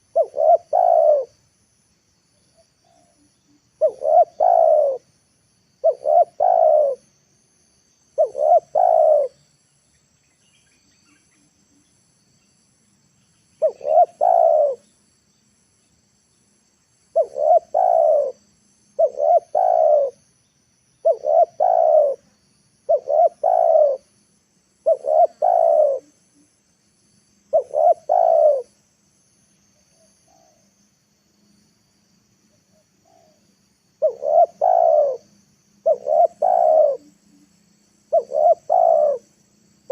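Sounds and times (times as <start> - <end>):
dove cooing: 0.0 - 1.3, 3.8 - 5.1, 5.8 - 7.1, 8.2 - 9.4, 13.6 - 14.8, 17.1 - 18.4, 19.0 - 20.2, 21.0 - 22.3, 22.9 - 24.1, 24.8 - 26.2, 27.5 - 28.7, 32.8 - 33.4, 34.0 - 37.5, 38.1 - 39.3.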